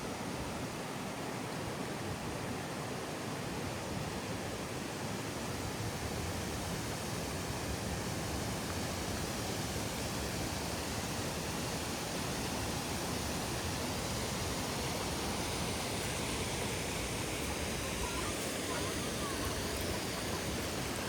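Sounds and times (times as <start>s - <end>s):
waterfall splashing: 11.0s - 21.0s.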